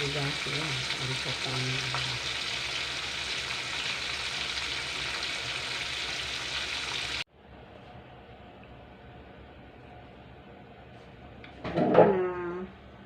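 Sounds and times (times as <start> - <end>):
food sizzling in hot oil: 0.0 - 7.3.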